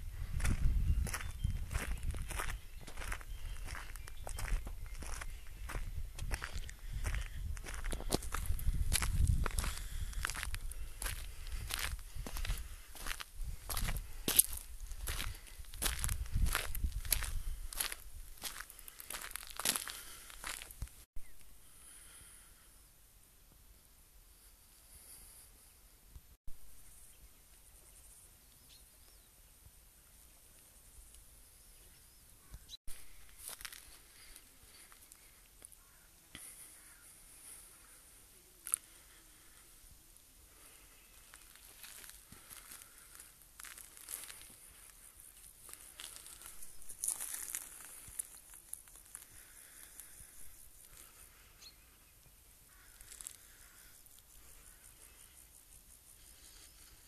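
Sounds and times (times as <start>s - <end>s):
insect hiss: 21.3s - 57.0s
short bird chirps: 51.6s - 52.2s.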